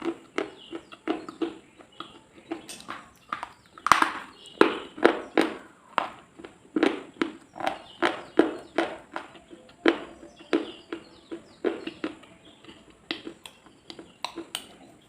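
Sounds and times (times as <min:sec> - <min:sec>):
short sharp crunches: 0:02.5 - 0:09.3.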